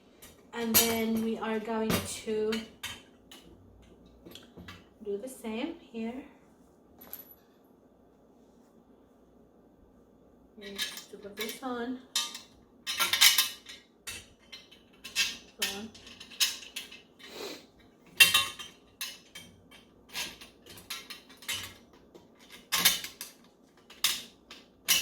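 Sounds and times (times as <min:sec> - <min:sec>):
cage parts clinking and knocking: 0:10.6 - 0:25.0.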